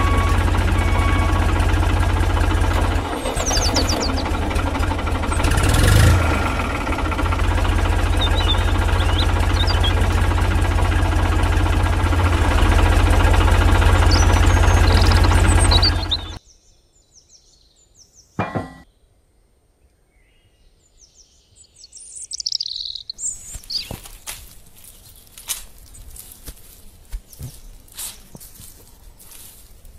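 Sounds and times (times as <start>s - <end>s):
tractor engine chugging: 0.0s - 16.4s.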